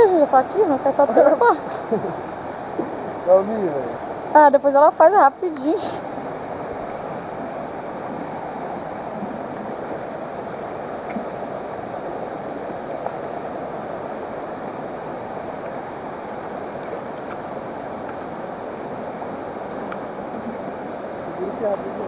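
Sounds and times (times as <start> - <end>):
waterfall rushing: 0.0 - 22.0
faint small ticks: 16.8 - 18.3, 19.8 - 20.1.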